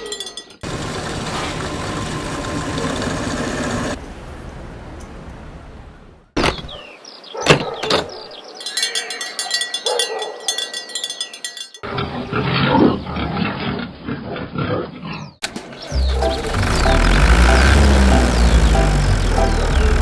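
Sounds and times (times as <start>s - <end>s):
vehicle engine running: 0.6s - 4.0s, 15.4s - 20.0s
short sliding pitch sounds: 15.8s - 20.0s.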